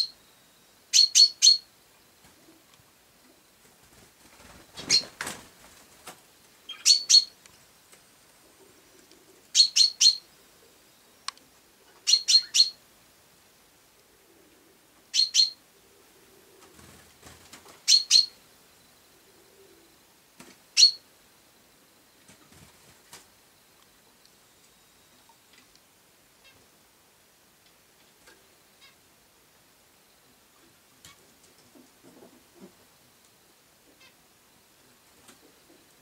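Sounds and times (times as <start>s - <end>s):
rustle: 0.0s - 36.0s
sparrow chirping: 0.9s - 1.7s, 4.8s - 5.1s, 6.7s - 7.4s, 9.5s - 10.3s, 12.0s - 12.8s, 15.1s - 15.6s, 17.8s - 18.4s, 20.8s - 21.0s.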